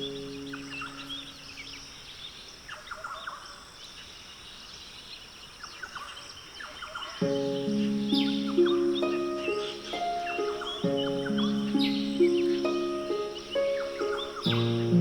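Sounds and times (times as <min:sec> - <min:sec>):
soft sustained music notes: 0:00.0 - 0:01.8, 0:07.2 - 0:15.0
ambient hiss: 0:00.0 - 0:15.0
small birds chirping: 0:00.0 - 0:15.0.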